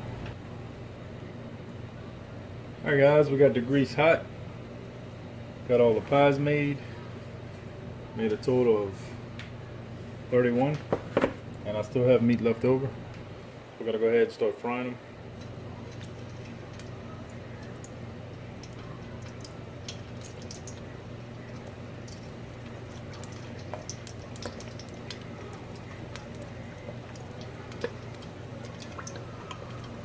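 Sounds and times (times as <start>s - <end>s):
grease pops and crackles: 15.4s - 30.0s
pies sizzling in hot grease: 15.4s - 30.0s.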